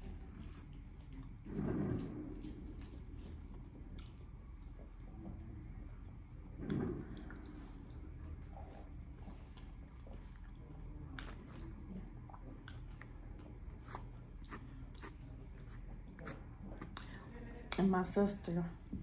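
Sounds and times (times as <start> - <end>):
person chewing food: 2.7 - 5.2, 7.2 - 17.6.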